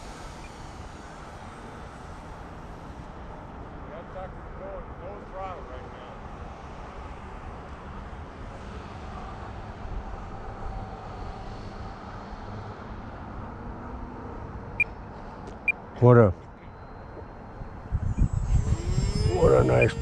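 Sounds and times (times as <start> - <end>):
low wind rumble: 17.0 - 20.0
model plane motor whine: 17.8 - 20.0
short beeps: 19.0 - 20.0.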